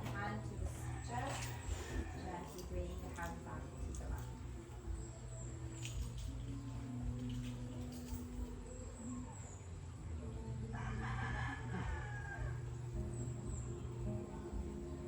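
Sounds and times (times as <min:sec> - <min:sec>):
steady low tones: 0:00.0 - 0:15.0
rooster crowing: 0:00.7 - 0:02.6, 0:10.7 - 0:13.3.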